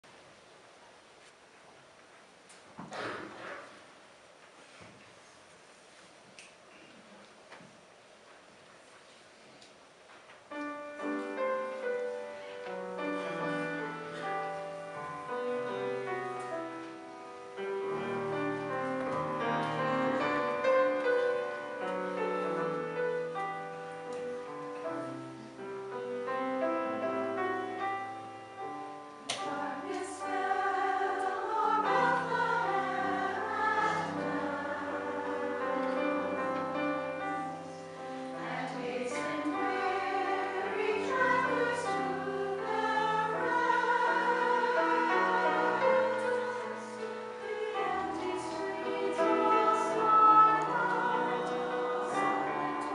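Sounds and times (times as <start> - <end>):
chorus singing in harmony: 11.1 - 23.7, 28.9 - 52.9.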